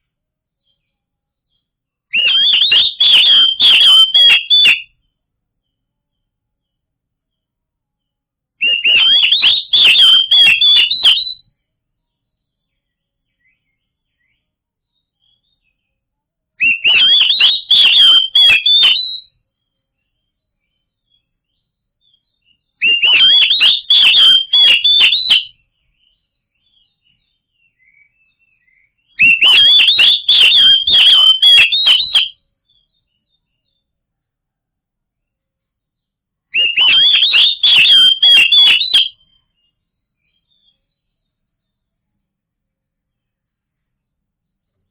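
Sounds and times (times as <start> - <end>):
bird singing whistled phrases: 2.1 - 5.1, 8.6 - 11.5, 16.6 - 19.4, 20.0 - 33.8, 36.5 - 41.1.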